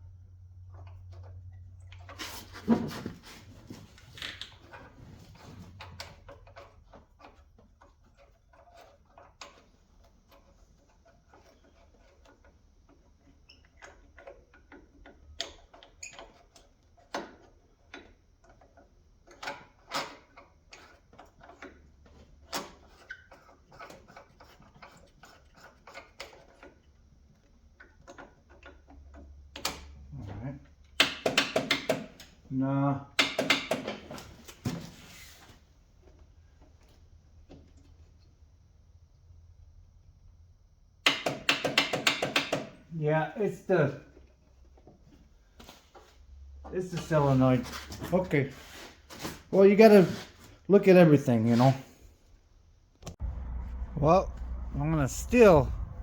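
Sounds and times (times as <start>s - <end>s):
hand tools clicking and knocking: 31.0s - 32.3s, 33.2s - 34.1s, 41.1s - 42.8s.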